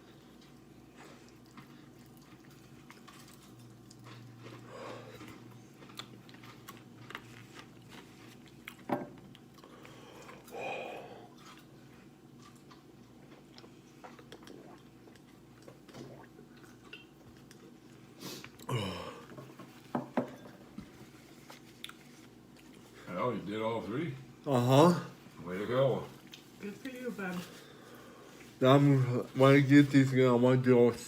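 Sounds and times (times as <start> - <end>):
chewing crunchy food: 0.0 - 19.9, 20.7 - 23.1.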